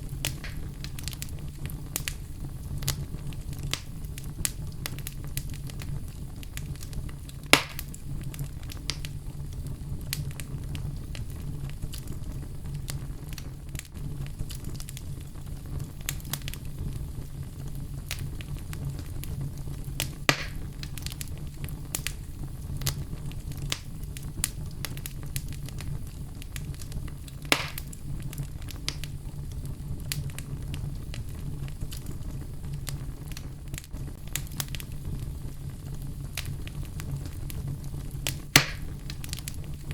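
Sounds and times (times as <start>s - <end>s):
fire crackling: 0.0s - 39.9s
fire flames rumbling: 0.0s - 39.9s
loud fire pops: 0.0s - 39.9s.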